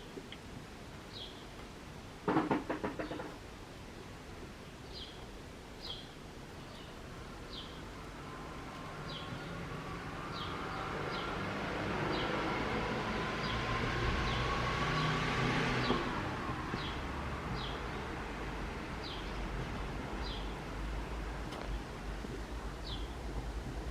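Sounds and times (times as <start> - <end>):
passing vehicle rumbling: 7.9 - 23.9.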